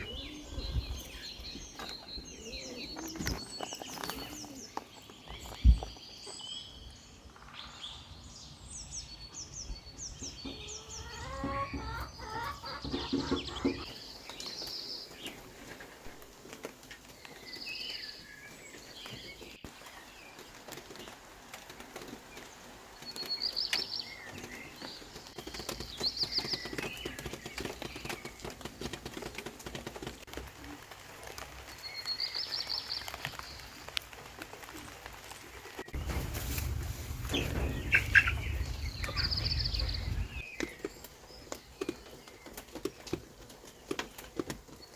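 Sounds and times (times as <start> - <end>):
small birds singing: 0.0 - 44.9
low rumble: 36.0 - 40.6.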